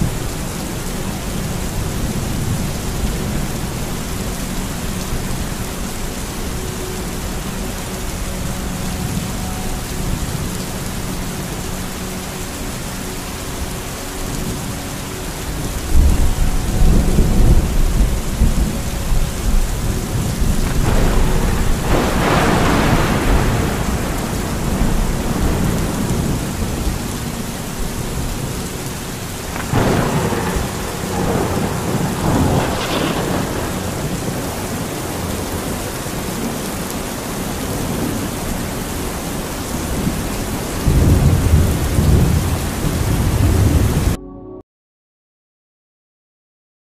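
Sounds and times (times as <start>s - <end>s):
steady rain: 0.0s - 44.2s
thunder rumbling and cracking: 14.4s - 44.2s.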